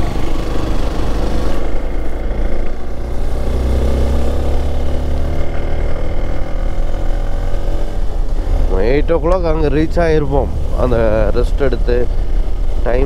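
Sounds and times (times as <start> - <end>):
motorcycle engine running uphill: 0.0 - 10.4.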